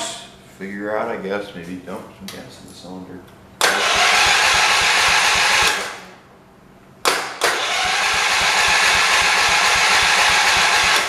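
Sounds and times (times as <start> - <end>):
engine cranking without firing: 3.6 - 6.1, 7.5 - 11.0.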